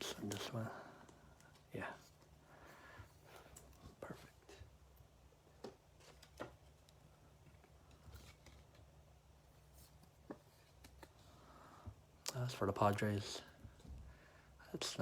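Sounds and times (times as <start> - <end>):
trading cards clicking and rustling: 0.0 - 2.4, 5.5 - 9.0, 9.9 - 11.2.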